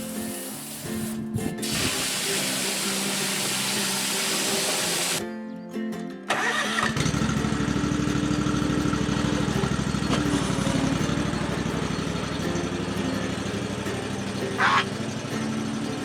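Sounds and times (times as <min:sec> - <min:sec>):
small engine cranking and idling: 0:06.3 - 0:16.0.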